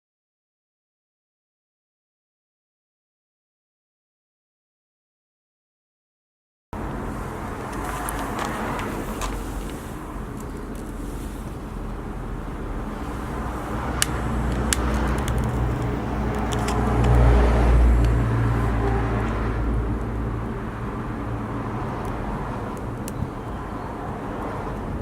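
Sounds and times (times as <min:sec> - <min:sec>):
car passing: 0:06.8 - 0:25.0
sharp cracks: 0:13.2 - 0:17.4.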